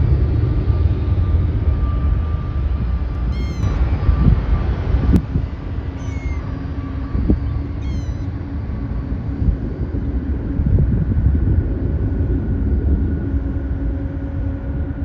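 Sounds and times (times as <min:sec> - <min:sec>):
jet engines rumbling: 0:00.0 - 0:15.0
bird chirping: 0:03.2 - 0:03.9, 0:05.9 - 0:06.6, 0:07.6 - 0:08.3.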